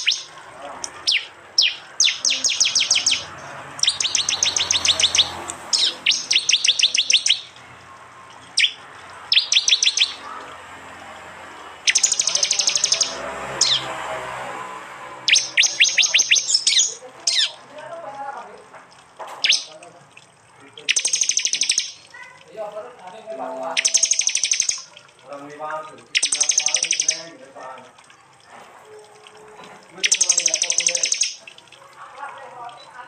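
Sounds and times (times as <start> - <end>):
bird calling sharp high notes: 0.0 - 7.6, 8.5 - 10.4, 11.9 - 14.0, 15.2 - 17.6, 19.4 - 19.8, 20.8 - 22.3, 23.6 - 25.0, 26.0 - 27.4, 30.0 - 31.6.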